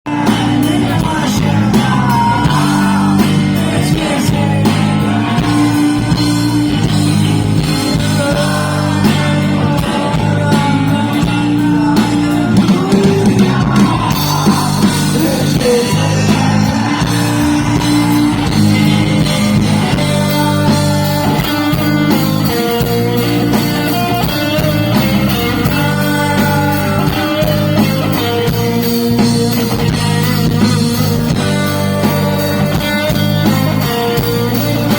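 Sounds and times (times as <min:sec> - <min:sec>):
rock band playing: 0:00.0 - 0:34.9
person singing: 0:00.1 - 0:34.9
electric guitar solo: 0:10.7 - 0:34.9.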